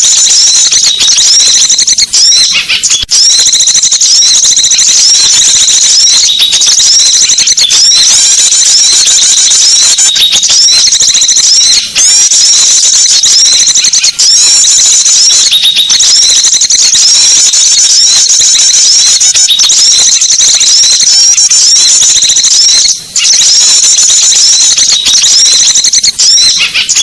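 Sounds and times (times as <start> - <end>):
small birds chirping: 0.0 - 3.1, 4.0 - 12.7, 26.4 - 27.0.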